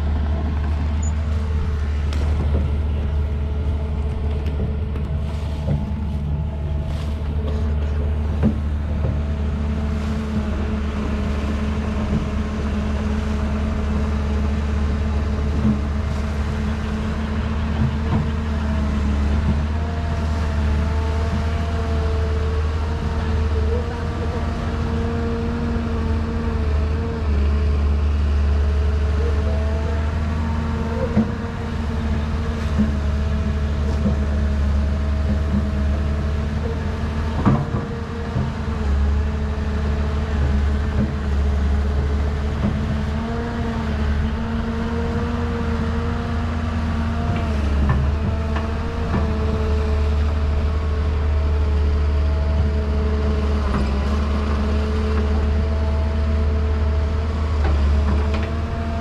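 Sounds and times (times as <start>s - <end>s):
excavator motor hum: 0.0s - 59.0s.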